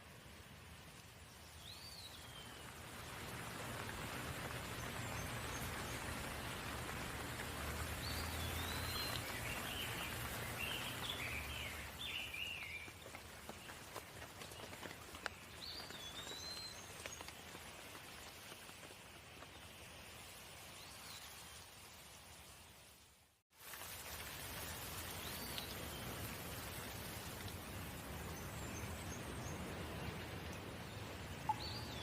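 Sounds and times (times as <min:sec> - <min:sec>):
rain falling: 0:00.0 - 0:32.0
raindrops ticking: 0:00.6 - 0:20.2, 0:23.6 - 0:32.0
bird chirping: 0:31.4 - 0:32.0.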